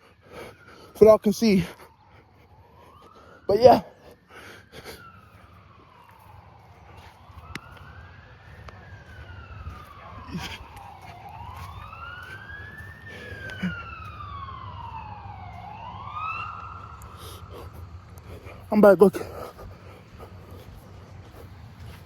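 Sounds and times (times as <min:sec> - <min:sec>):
ambulance siren wailing: 0:00.0 - 0:22.0
steady low rumble: 0:05.5 - 0:22.0.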